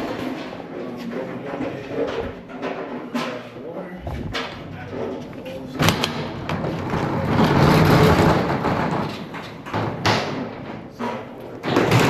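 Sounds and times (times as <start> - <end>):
metal roll-up door rattling: 5.7 - 12.0.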